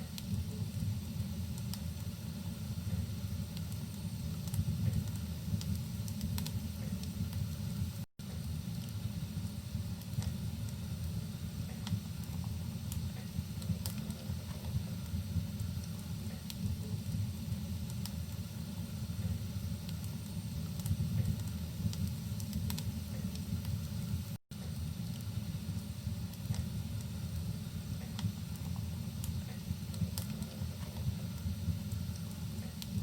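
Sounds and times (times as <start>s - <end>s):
wood fire crackling and popping: 0.0s - 33.0s.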